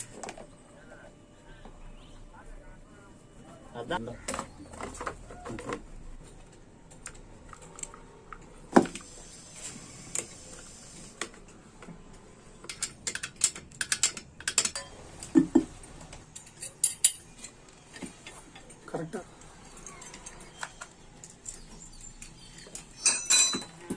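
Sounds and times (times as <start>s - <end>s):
metal parts clicking and clinking: 12.6s - 15.3s, 16.2s - 23.9s.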